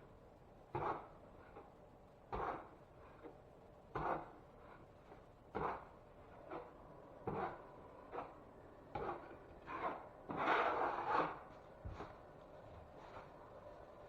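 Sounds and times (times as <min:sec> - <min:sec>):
hand tool scraping drywall: 0:00.7 - 0:01.7, 0:02.3 - 0:12.2.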